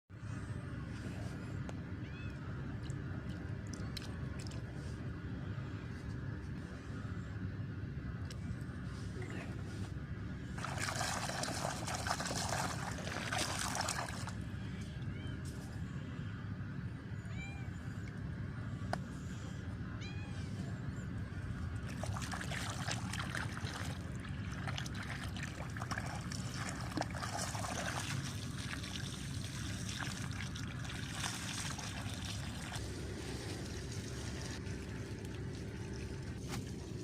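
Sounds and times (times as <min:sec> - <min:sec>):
steady low rumble: 0:00.1 - 0:37.0
water trickling and splashing: 0:10.6 - 0:14.4, 0:21.8 - 0:37.0
cat meowing: 0:20.0 - 0:20.5.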